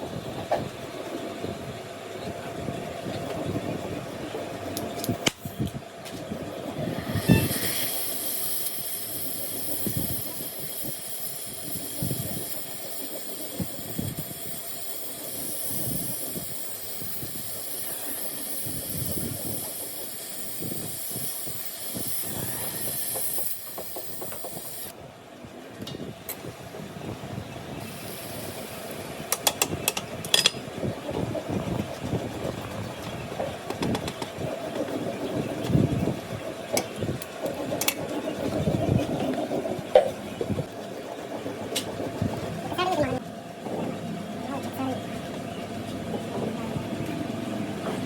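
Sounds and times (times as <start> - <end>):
high-pitched hiss: 6.7 - 24.9, 27.8 - 29.2.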